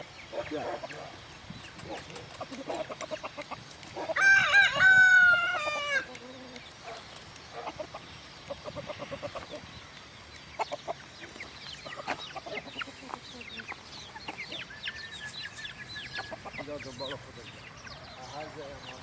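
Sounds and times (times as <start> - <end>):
chickens clucking: 0.0 - 19.0
rooster crowing: 4.1 - 6.1.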